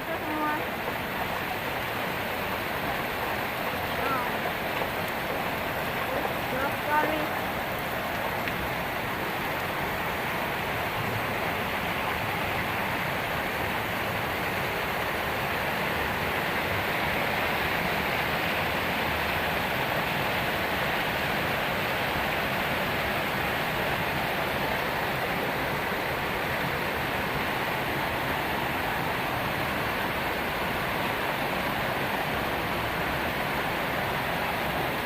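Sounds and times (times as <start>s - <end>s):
heavy rain downpour: 0.0s - 35.0s.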